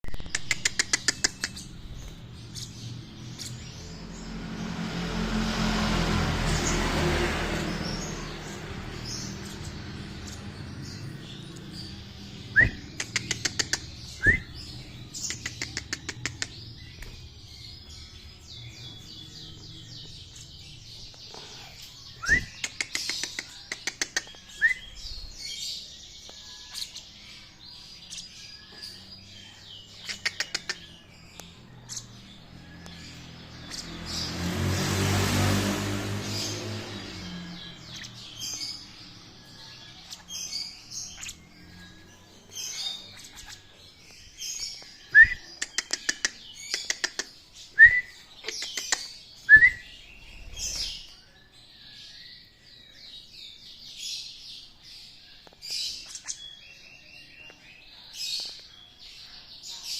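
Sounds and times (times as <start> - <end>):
bird chirping and chattering: 0.0 - 59.9
rising whistled chirps: 12.4 - 12.9, 14.2 - 14.6, 22.2 - 22.7, 45.0 - 45.5, 49.5 - 50.9.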